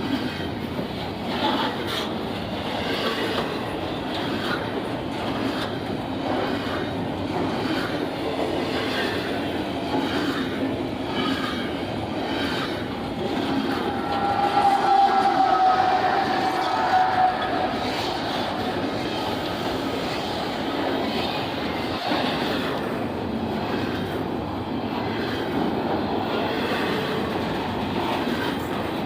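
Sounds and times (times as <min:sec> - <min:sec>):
train cars rumbling: 0:00.0 - 0:29.0
wheels clacking over rail joints: 0:00.0 - 0:29.0
high squeal: 0:13.6 - 0:19.6.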